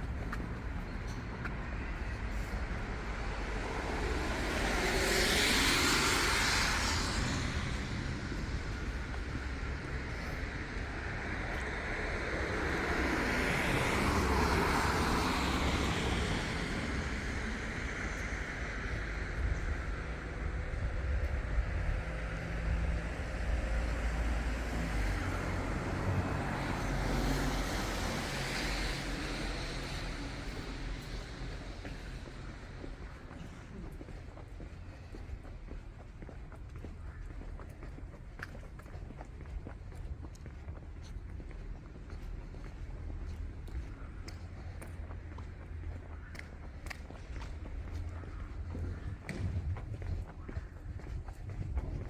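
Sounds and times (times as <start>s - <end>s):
low traffic rumble: 0.0s - 52.0s
vehicle passing by: 2.3s - 33.3s.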